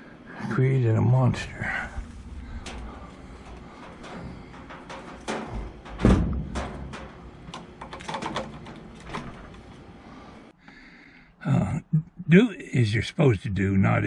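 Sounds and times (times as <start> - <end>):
power cord clicks and knocks: 2.2 - 9.9.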